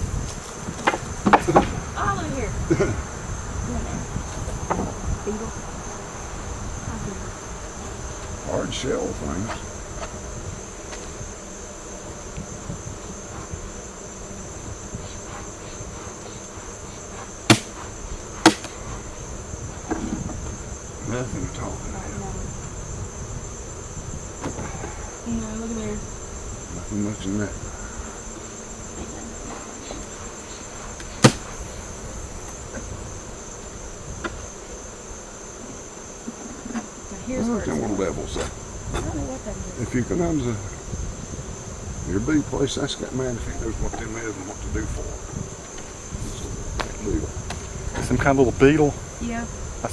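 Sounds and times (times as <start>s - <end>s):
high insect trill: 0.0s - 49.9s
sharp knocks: 17.5s - 18.8s, 31.0s - 31.6s.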